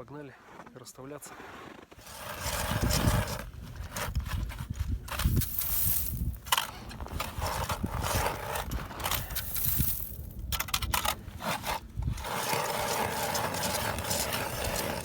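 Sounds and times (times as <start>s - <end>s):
footsteps crunching through snow: 0.2s - 10.4s
wind on microphone: 2.3s - 15.0s.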